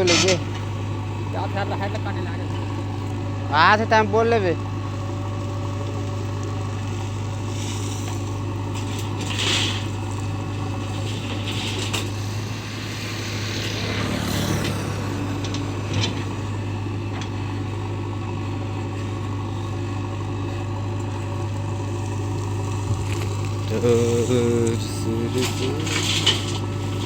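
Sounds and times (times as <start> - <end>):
diesel engine droning: 0.0 - 27.0
bursts of rushing noise: 11.8 - 16.4.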